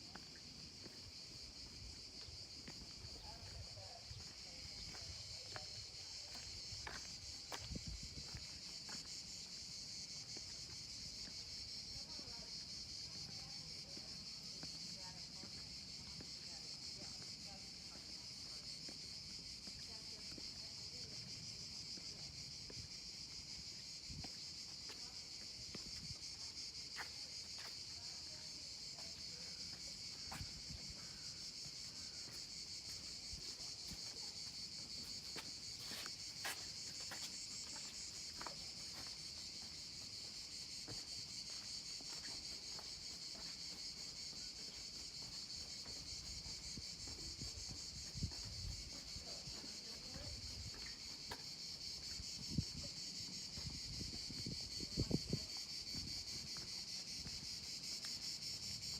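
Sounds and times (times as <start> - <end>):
insect chorus buzzing: 0.0 - 58.9.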